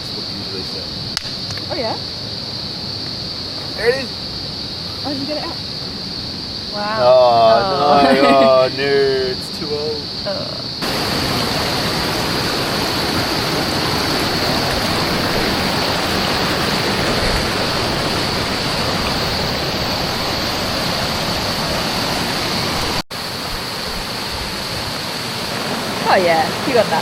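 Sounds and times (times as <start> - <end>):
waterfall rushing: 7.0 - 9.9, 10.8 - 27.0.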